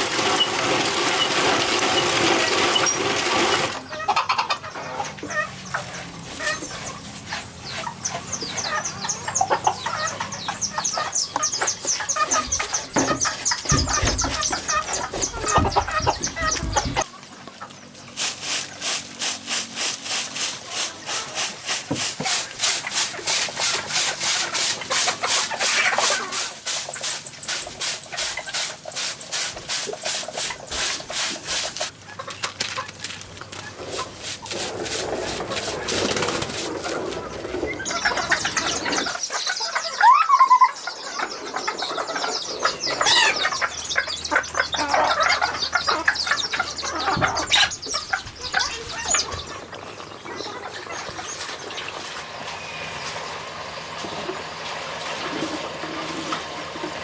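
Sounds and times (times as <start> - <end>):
work clatter: 0.0 - 3.9, 11.4 - 17.1
chickens clucking: 0.0 - 57.0.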